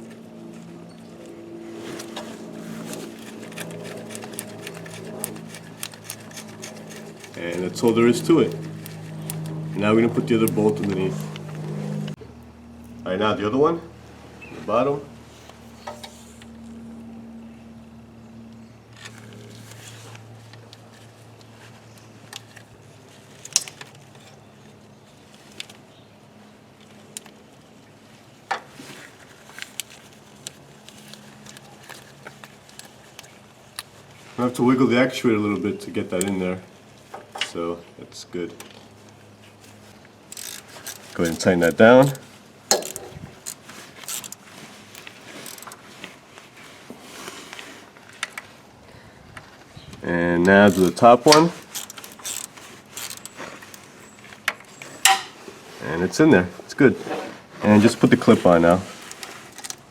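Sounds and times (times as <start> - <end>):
hand tools clicking and knocking: 2.9 - 9.5, 40.3 - 45.8, 50.6 - 53.8.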